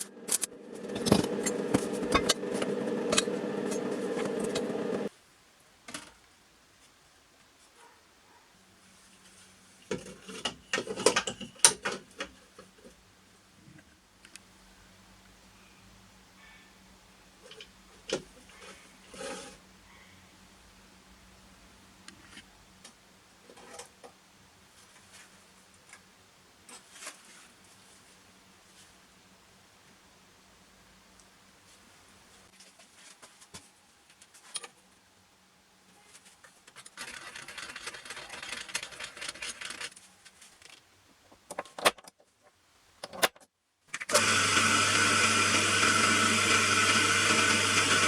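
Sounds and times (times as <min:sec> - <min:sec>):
belt sander motor humming: 0:00.0 - 0:05.1, 0:44.2 - 0:48.0
faint steady hum: 0:00.0 - 0:36.4.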